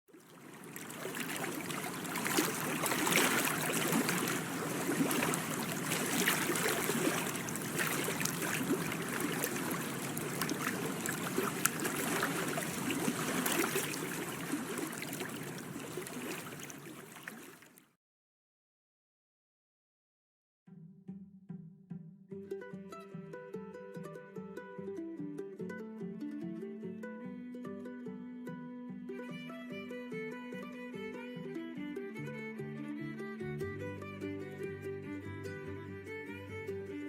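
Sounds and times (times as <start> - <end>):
water lapping and splashing: 0.1 - 17.9.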